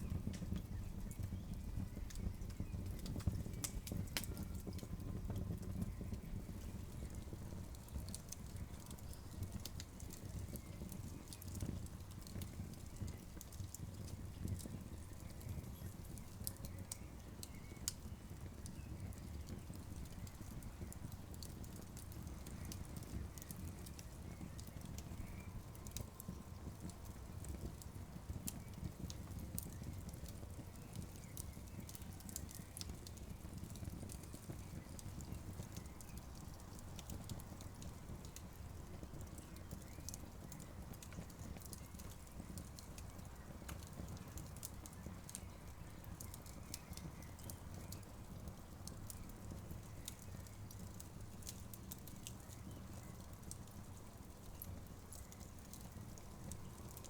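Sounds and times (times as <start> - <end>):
campfire flames rumbling: 0.0 - 57.0
fire crackling and popping: 0.0 - 57.0.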